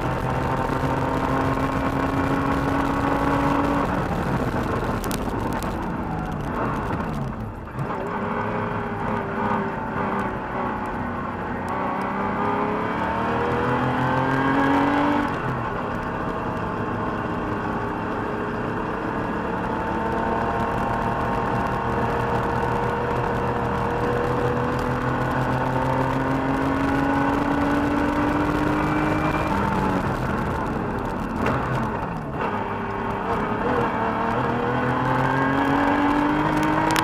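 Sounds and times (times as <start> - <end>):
car engine accelerating: 0.0 - 37.0.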